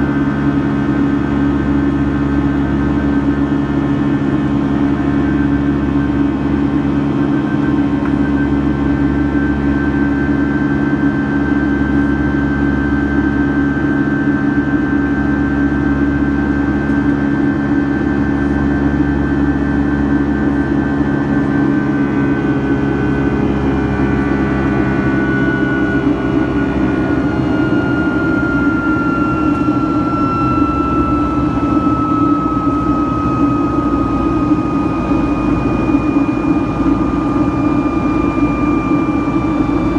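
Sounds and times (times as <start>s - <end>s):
jet engines droning in cabin: 0.0s - 39.9s
high whine falling in pitch: 23.4s - 39.9s.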